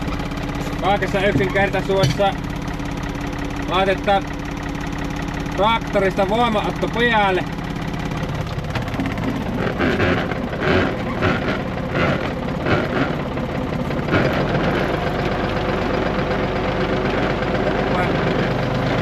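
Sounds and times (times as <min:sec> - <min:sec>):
regular mechanical clatter: 0:00.0 - 0:19.0
tractor engine running: 0:00.0 - 0:19.0
steady low hum: 0:05.6 - 0:15.8.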